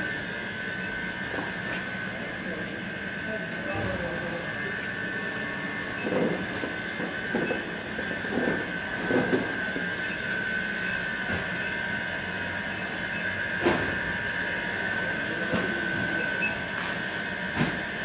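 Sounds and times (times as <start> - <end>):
conveyor whine and rumble: 0.0 - 18.0.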